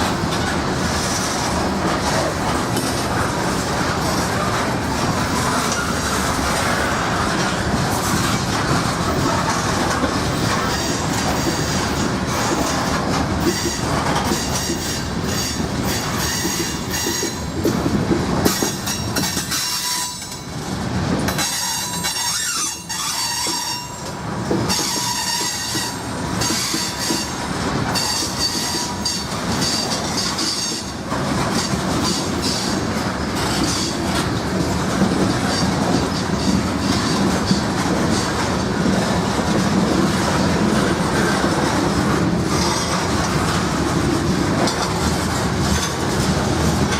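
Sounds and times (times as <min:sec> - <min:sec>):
train wheels clacking over rails: 0:00.0 - 0:46.9
high-pitched wheel squeal: 0:21.5 - 0:24.0, 0:24.7 - 0:27.3.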